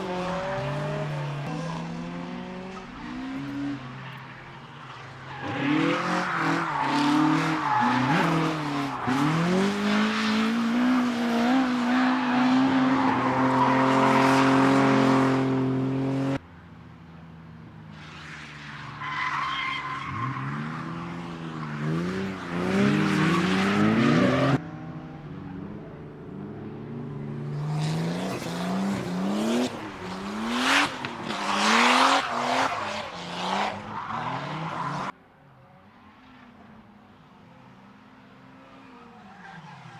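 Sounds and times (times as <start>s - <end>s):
car engines revving: 0.0s - 35.2s.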